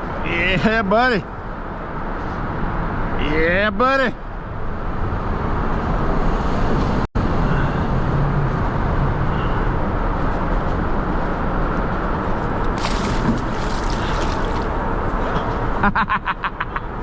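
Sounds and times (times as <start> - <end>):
wind rumble on microphone: 4.3 - 15.8.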